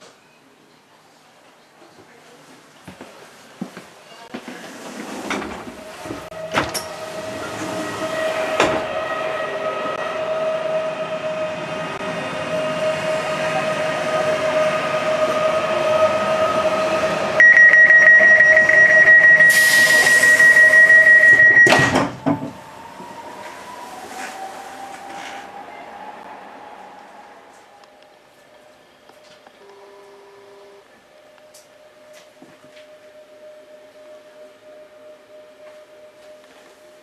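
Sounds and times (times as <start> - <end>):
electric train hum: 5.0 - 37.0
high warning tone: 17.4 - 22.2
air hiss: 19.5 - 20.8.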